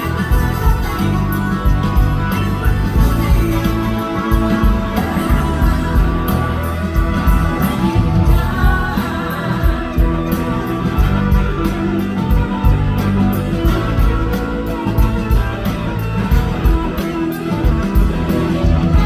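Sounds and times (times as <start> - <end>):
blues-rock band playing: 0.0 - 19.0
person singing: 2.5 - 14.0.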